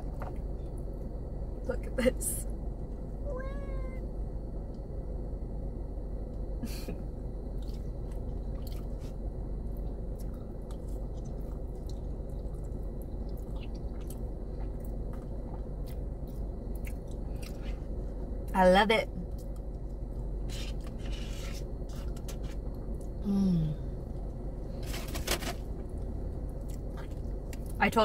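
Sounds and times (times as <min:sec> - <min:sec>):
steady low hum: 0:00.0 - 0:28.0
person chewing food: 0:07.6 - 0:17.8, 0:26.5 - 0:27.7.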